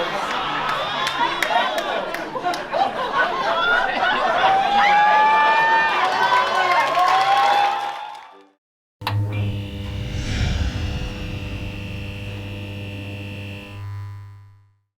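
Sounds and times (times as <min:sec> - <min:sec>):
strong low hum: 0:09.6 - 0:14.6.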